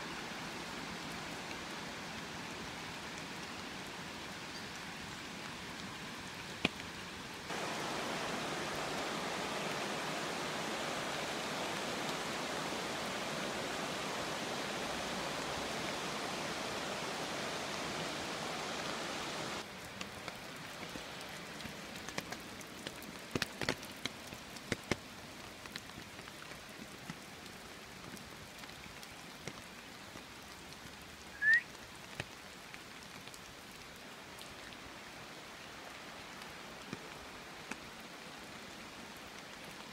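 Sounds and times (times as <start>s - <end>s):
steady rain falling: 0.0s - 39.9s
sharp drips and taps: 20.0s - 25.0s.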